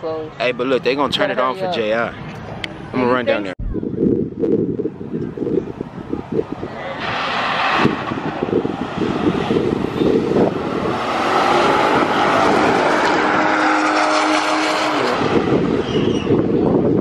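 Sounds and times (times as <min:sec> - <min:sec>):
car engine at full throttle: 0:05.5 - 0:16.6.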